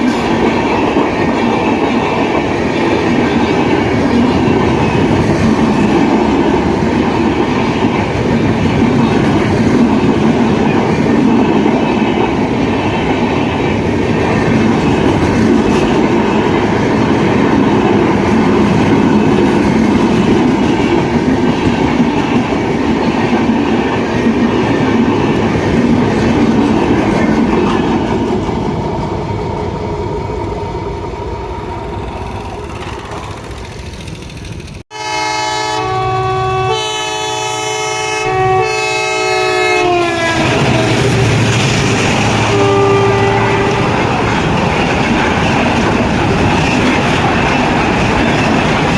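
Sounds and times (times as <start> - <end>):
wheels clickety-clack on rails: 0.0 - 29.5, 31.6 - 34.8, 40.4 - 48.9
train passing at speed: 0.0 - 48.9.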